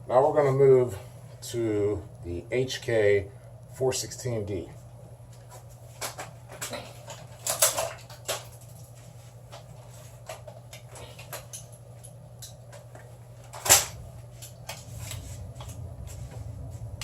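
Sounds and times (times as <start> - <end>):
airsoft rifles clicking and knocking: 6.0 - 8.6.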